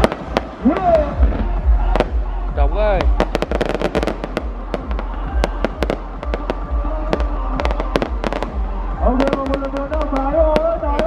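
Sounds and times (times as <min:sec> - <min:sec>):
fireworks cracks and bangs: 0:00.0 - 0:02.4, 0:03.0 - 0:11.0
deep fireworks booms: 0:00.0 - 0:11.0.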